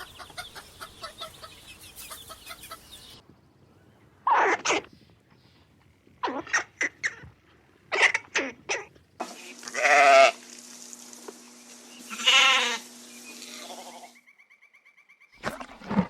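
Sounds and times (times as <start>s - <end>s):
farm animal bleating: 9.4s - 10.4s, 12.0s - 14.2s.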